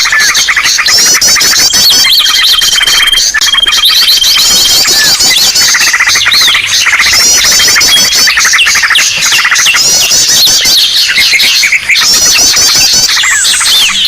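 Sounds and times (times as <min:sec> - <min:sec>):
chorus of small birds calling: 0:00.0 - 0:14.0.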